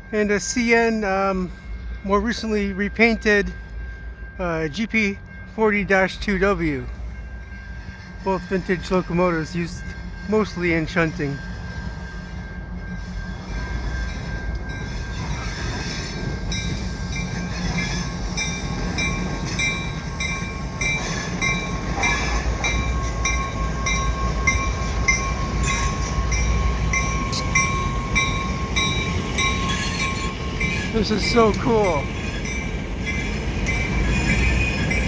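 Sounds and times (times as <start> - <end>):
diesel locomotives rumbling: 0.0 - 35.0
high ringing strokes: 0.0 - 35.0
train wheel squeal: 9.3 - 35.0.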